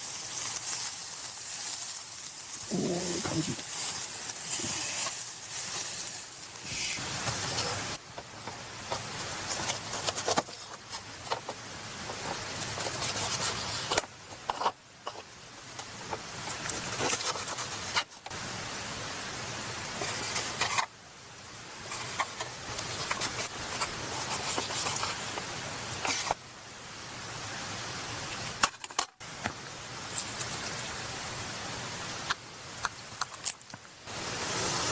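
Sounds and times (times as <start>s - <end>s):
meat sizzling on a grill: 0.0s - 10.1s, 34.0s - 34.9s.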